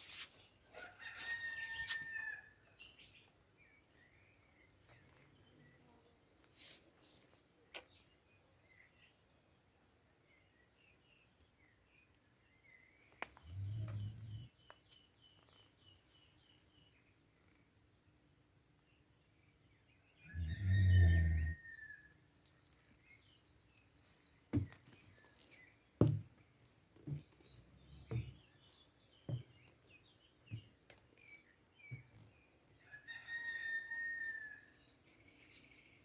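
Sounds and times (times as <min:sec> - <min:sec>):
songbird chirps and trills: 0:00.0 - 0:18.2, 0:18.8 - 0:36.0
rooster crowing: 0:32.9 - 0:34.6.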